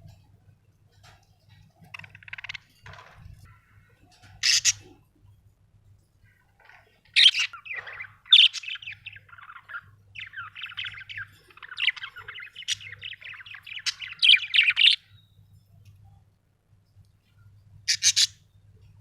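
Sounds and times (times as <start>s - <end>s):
budgerigar chirping: 4.4s - 4.9s, 7.2s - 15.0s, 17.9s - 18.4s.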